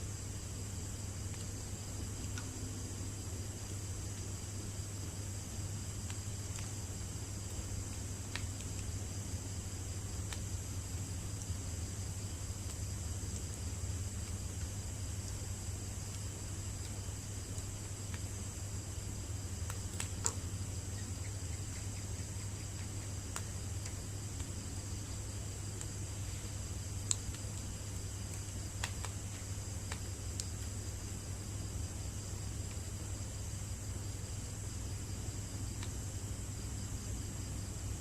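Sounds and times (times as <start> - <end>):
crickets chirping drone: 0.0 - 38.0
bonfire crackling pops: 5.7 - 18.6, 19.4 - 20.6, 21.6 - 31.1.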